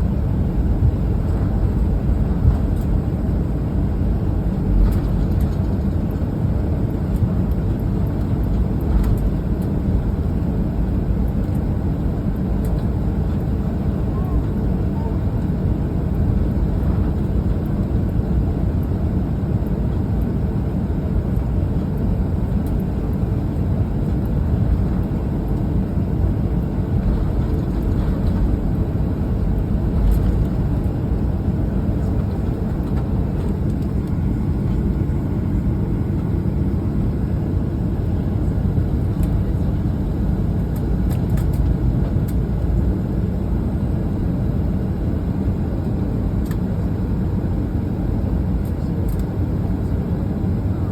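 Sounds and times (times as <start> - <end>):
airplane cabin roar: 0.0 - 50.9.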